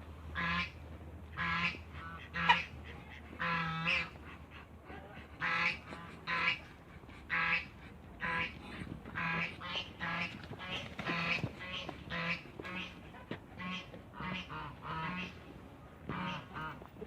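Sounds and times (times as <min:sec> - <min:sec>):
waterfowl calling: 0:01.4 - 0:04.4.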